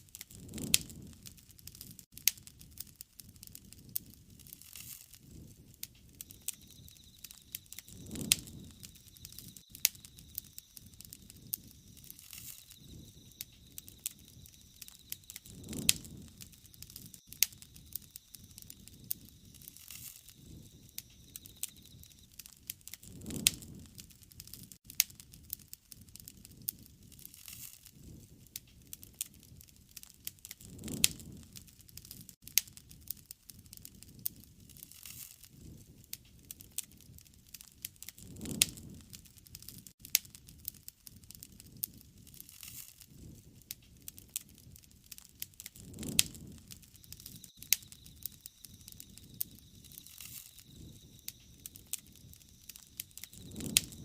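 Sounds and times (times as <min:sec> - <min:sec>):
wood fire crackling: 0:00.0 - 0:54.0
soft low rush: 0:06.3 - 0:22.2.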